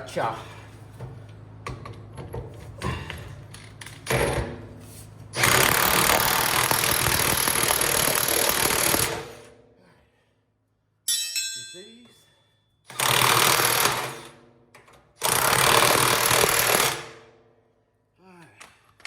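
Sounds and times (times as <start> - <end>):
metal tools clinking: 11.1 - 12.5.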